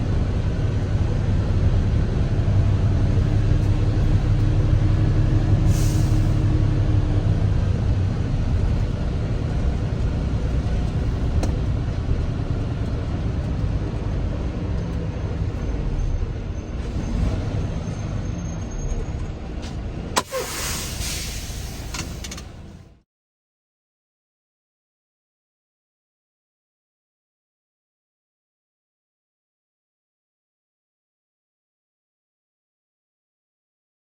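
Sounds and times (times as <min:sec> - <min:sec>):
truck diesel engine rumbling: 0:00.0 - 0:23.0.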